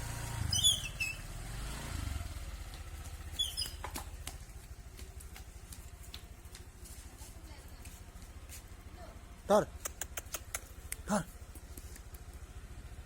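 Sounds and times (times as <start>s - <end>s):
motorcycle engine running: 0.0s - 13.0s
high chirps: 0.5s - 1.2s, 3.3s - 3.9s.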